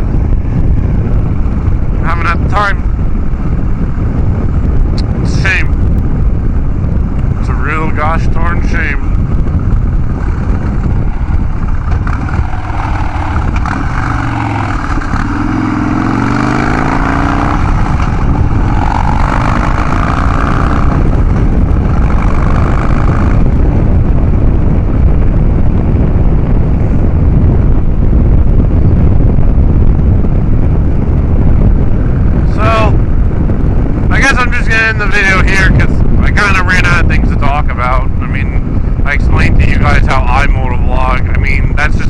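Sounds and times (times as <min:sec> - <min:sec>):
motorcycle engine under way: 0:08.6 - 0:27.1.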